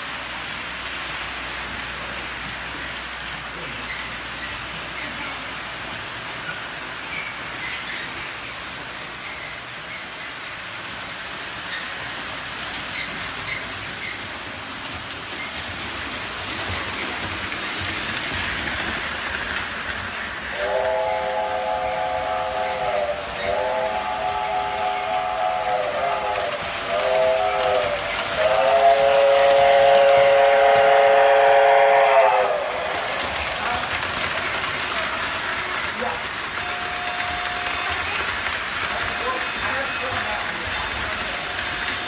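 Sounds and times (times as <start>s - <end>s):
model train running on track: 0.0s - 42.0s
train horn blasts: 20.5s - 32.9s, 36.6s - 38.0s.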